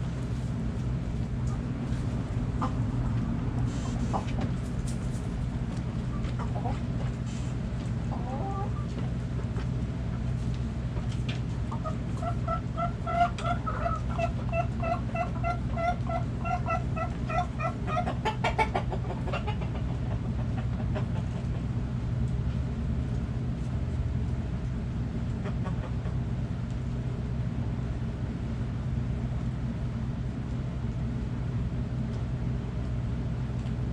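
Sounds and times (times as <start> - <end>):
steady low hum: 0.0 - 33.9
hen clucking: 1.4 - 10.3, 11.5 - 21.8, 25.3 - 26.3.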